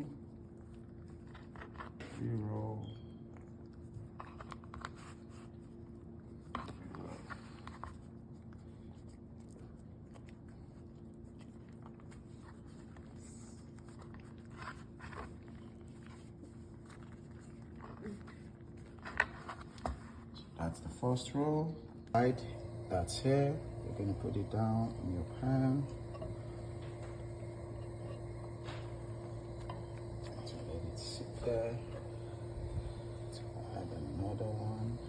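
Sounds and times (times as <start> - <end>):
steady low hum: 19.7 - 35.0.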